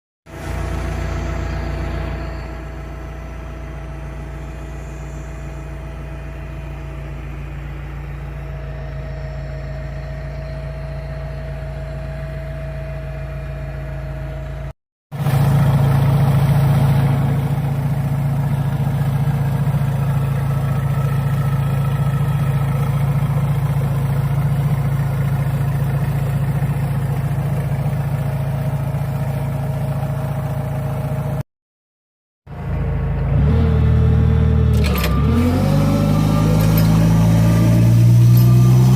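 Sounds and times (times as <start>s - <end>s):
forklift engine idling: 0.3s - 31.4s.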